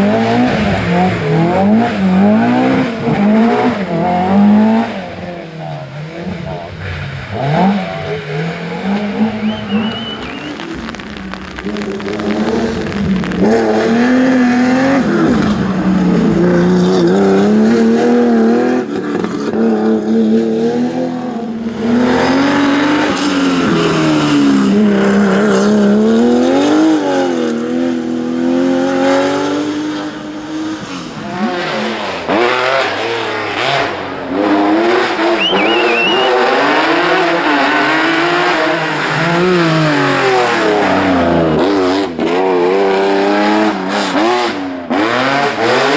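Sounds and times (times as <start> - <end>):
rally car engines revving: 0.0 - 45.9
tyre squeal: 7.1 - 11.8, 35.3 - 36.6.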